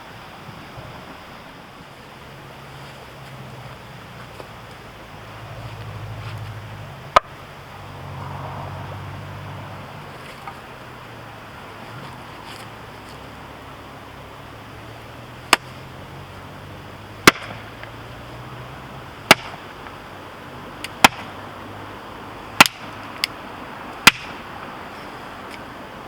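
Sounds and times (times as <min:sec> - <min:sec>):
hatchet chopping firewood: 0:15.5 - 0:15.8, 0:17.2 - 0:17.7, 0:19.2 - 0:19.7, 0:20.8 - 0:21.4, 0:22.6 - 0:23.4, 0:24.0 - 0:24.5.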